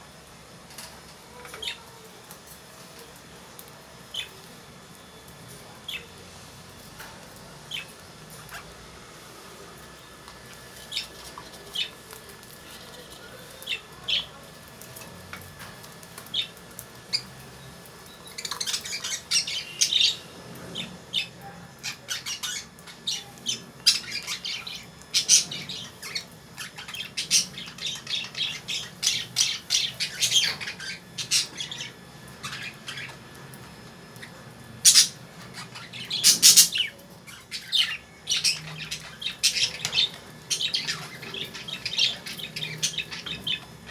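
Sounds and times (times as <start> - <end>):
lovebirds shrill calls: 10.5 - 14.4, 16.2 - 43.9.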